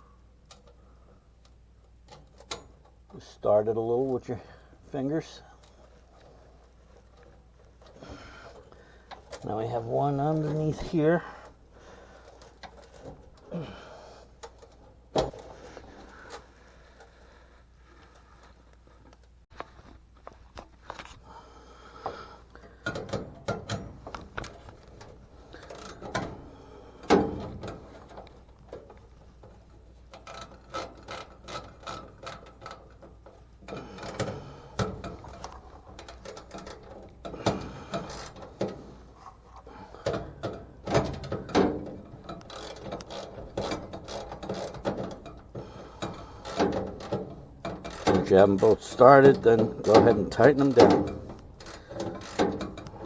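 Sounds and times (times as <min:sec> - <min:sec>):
ratchet driver clicking: 0:51.3 - 0:53.0.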